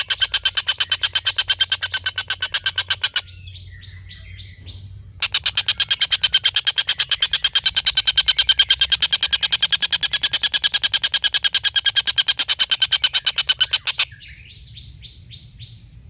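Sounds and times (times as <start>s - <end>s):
kingfisher cackling call: 0.0s - 3.4s, 5.2s - 14.2s
soft bird chirps: 0.0s - 15.9s.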